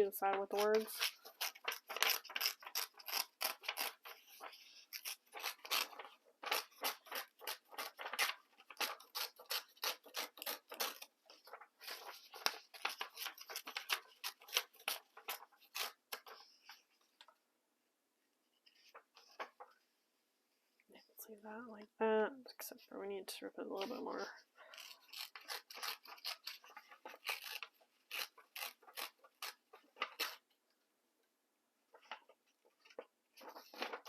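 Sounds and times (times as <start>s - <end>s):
paper tearing and crackling: 0.3s - 16.8s, 24.7s - 30.4s, 32.8s - 34.0s.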